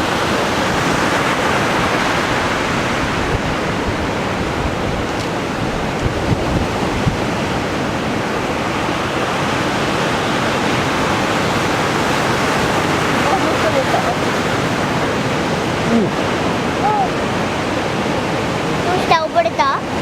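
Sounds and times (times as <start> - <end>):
heavy surf breaking: 0.0 - 20.0.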